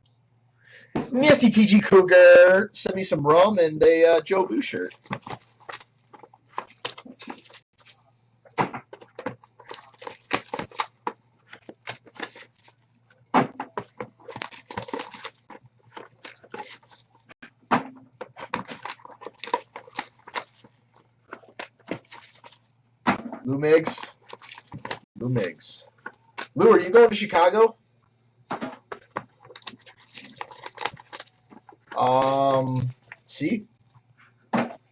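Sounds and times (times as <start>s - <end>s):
faint electrical hum: 0.0s - 34.9s
clicks and crackling: 1.0s - 22.7s, 23.4s - 34.1s
packaging rustling and crinkling: 4.6s - 8.1s, 8.7s - 17.4s, 18.0s - 22.8s, 23.7s - 27.5s, 28.7s - 34.9s.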